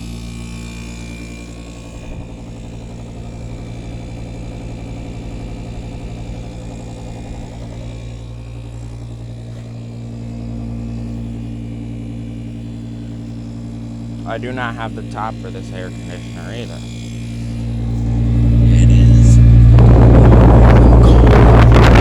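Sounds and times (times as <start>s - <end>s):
air conditioner humming: 0.0s - 22.0s.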